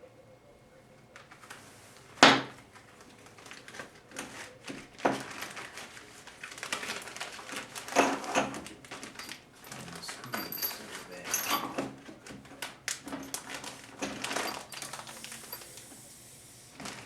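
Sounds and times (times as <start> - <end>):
tools and parts clicking and knocking: 7.9 - 14.7.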